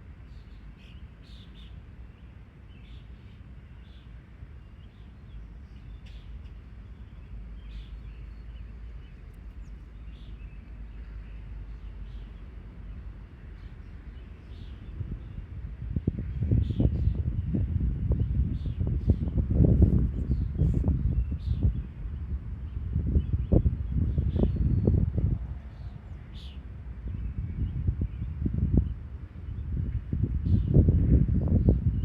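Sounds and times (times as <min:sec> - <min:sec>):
steady low rumble: 0:14.5 - 0:32.0.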